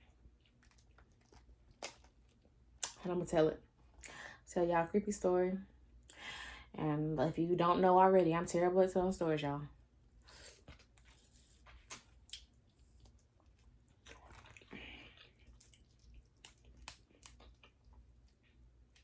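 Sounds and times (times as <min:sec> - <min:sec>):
person chewing: 0:00.0 - 0:03.0, 0:10.3 - 0:19.0
wet smacking noise: 0:00.5 - 0:03.0.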